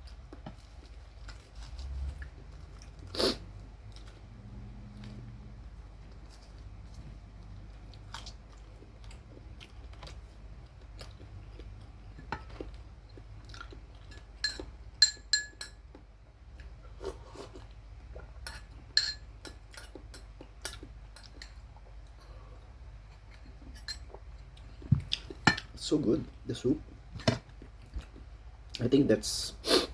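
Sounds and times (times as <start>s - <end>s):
chewing: 0.0s - 5.3s, 6.0s - 14.7s
steady low hum: 0.0s - 29.9s
utensils clinking on dishes: 14.1s - 15.8s.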